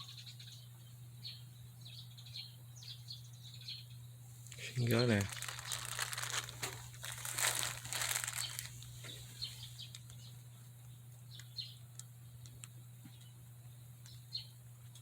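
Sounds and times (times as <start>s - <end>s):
small birds chirping: 0.0s - 15.0s
steady low hum: 0.0s - 15.0s
rustling: 4.4s - 10.2s.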